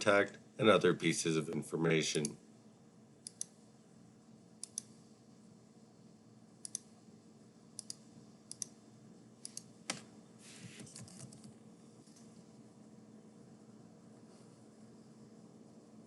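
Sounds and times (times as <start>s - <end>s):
low room hum: 0.0s - 16.0s
computer mouse clicking: 3.2s - 3.6s, 4.6s - 5.0s, 6.6s - 6.9s, 7.8s - 8.8s, 9.4s - 10.0s.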